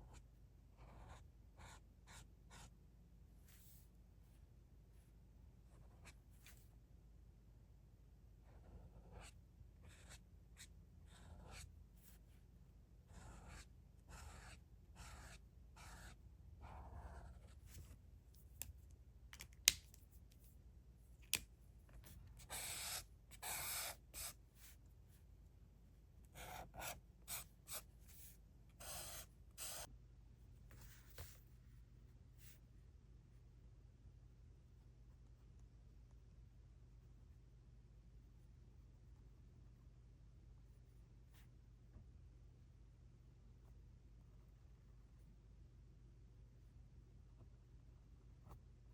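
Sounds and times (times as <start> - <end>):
pencil scratching on paper: 0.8 - 2.7, 8.4 - 12.2, 13.1 - 18.0, 22.0 - 24.8, 26.3 - 29.9.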